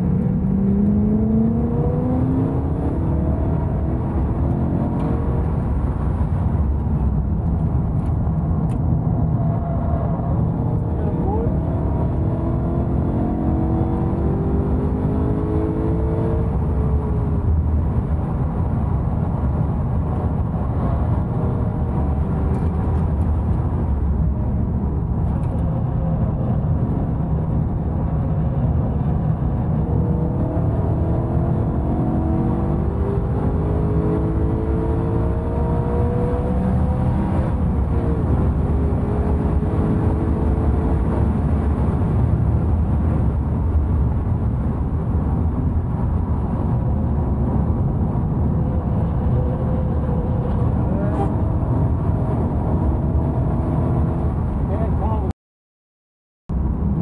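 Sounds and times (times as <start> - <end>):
race car engine revving: 10.6 - 17.3, 29.8 - 41.9.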